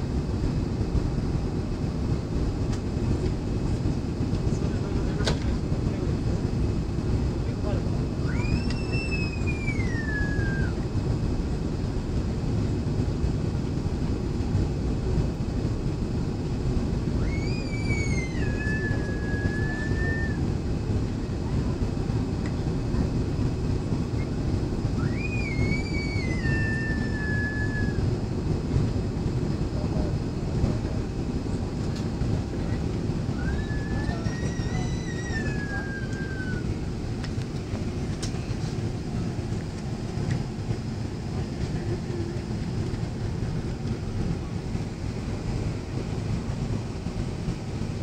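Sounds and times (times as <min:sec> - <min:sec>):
jet engines roaring in cabin: 0:00.0 - 0:48.0
high wailing cry: 0:17.2 - 0:20.4, 0:25.0 - 0:28.0, 0:33.3 - 0:36.8.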